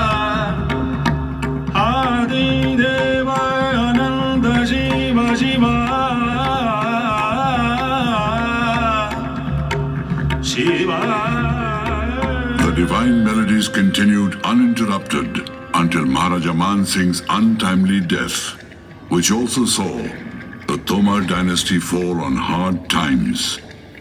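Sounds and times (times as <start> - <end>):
person singing ornamented notes: 0.0 - 18.3.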